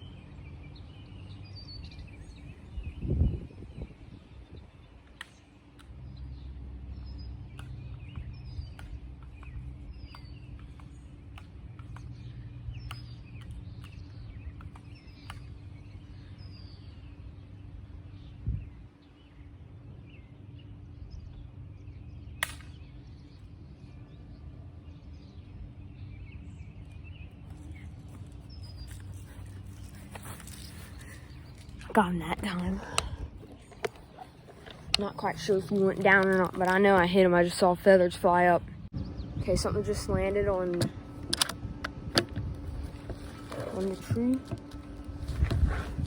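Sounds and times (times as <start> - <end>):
small birds chirping: 0.0 - 41.2
low rumble: 27.6 - 46.0.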